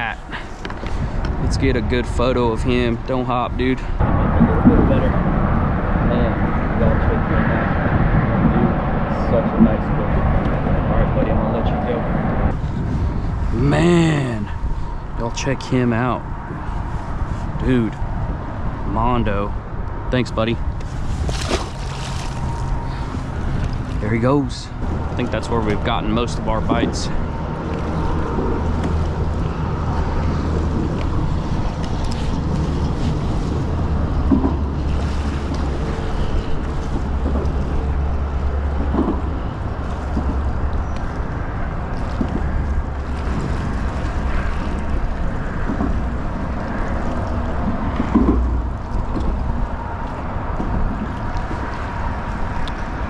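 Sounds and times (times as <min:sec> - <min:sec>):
wind buffeting microphone: 0:00.0 - 0:53.0
water lapping against a kayak: 0:20.7 - 0:24.2, 0:28.0 - 0:53.0.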